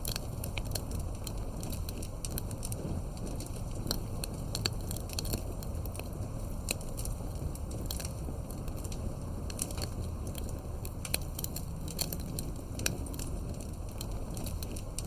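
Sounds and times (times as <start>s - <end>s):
low fire rumble: 0.0s - 15.0s
wood fire crackling: 0.0s - 15.0s.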